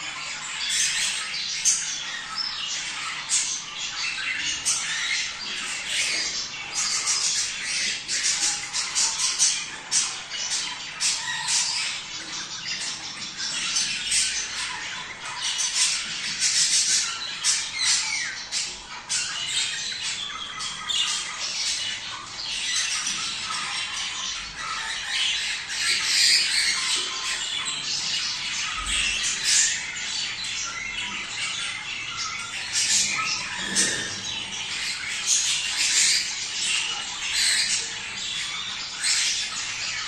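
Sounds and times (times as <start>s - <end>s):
budgerigars chattering and squawking: 0.0s - 40.0s.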